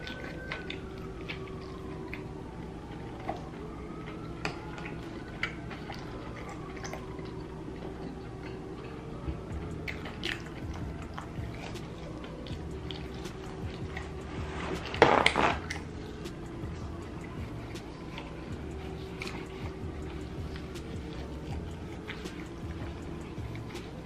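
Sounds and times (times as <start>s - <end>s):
crunchy chewing and biting: 0.0s - 8.9s, 9.6s - 24.0s
steady low hum: 0.0s - 24.0s
mouth smacks and clicks: 9.6s - 24.0s.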